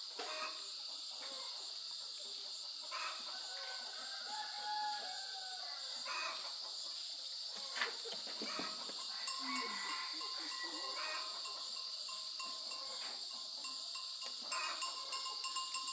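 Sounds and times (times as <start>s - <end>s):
insect chorus drone: 0.0s - 15.9s
faint animal calls: 7.6s - 13.4s.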